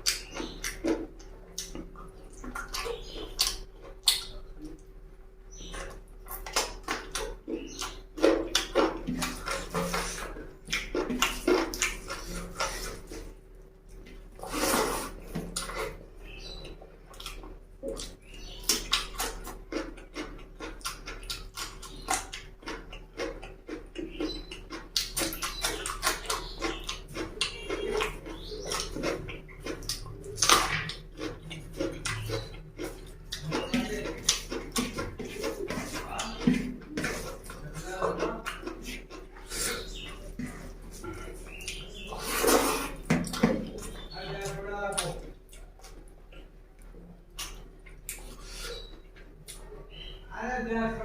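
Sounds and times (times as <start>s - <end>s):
wet chewing and lip-smacking: 0.0s - 50.2s
wet slurping: 14.0s - 46.5s.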